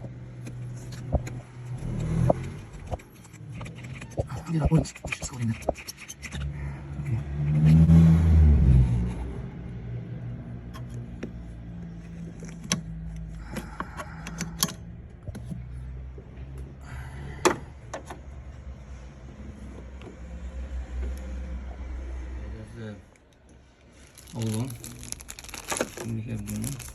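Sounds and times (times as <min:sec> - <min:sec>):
small metal clicks and scrapes: 0:00.3 - 0:07.8.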